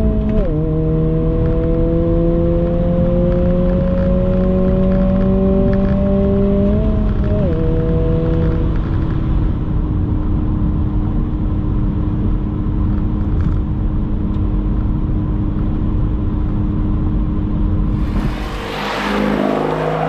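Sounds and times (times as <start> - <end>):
exhaust drone: 17.8 - 20.0.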